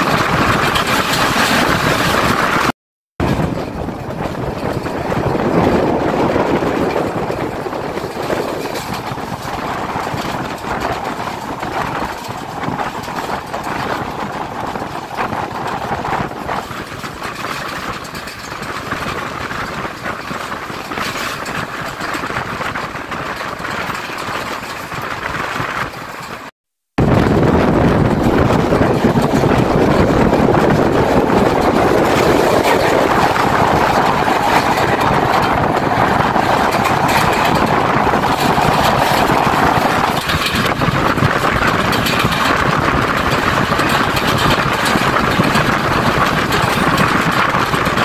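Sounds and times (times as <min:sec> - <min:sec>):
rushing air: 0:00.0 - 0:48.0
train wheels rumbling on track: 0:00.0 - 0:48.0.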